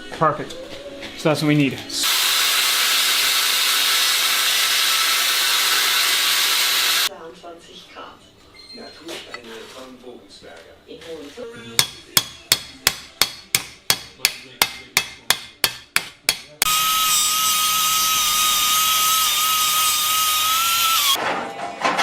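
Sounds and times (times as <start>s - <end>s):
power tool whining: 2.0s - 7.1s, 16.7s - 21.2s
hammer striking metal: 11.8s - 16.8s.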